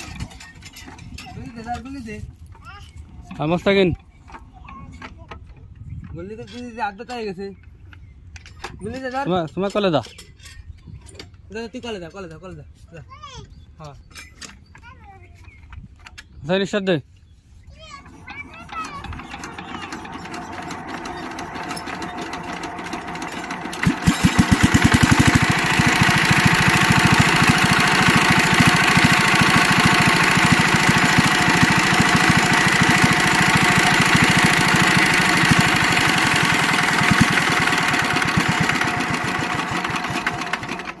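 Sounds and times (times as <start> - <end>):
diesel engine knocking: 18.9 - 41.0.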